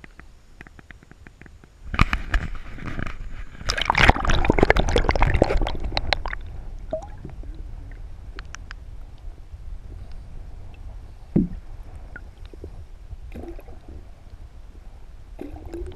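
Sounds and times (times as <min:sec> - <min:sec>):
underwater crackling clicks: 0:00.0 - 0:06.5, 0:08.3 - 0:09.3, 0:15.6 - 0:15.9
water sloshing and gurgling: 0:01.9 - 0:08.8, 0:09.8 - 0:15.9.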